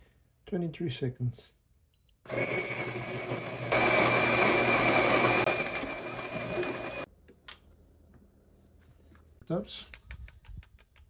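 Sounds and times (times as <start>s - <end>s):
coffee grinder motor whining: 2.3s - 7.1s.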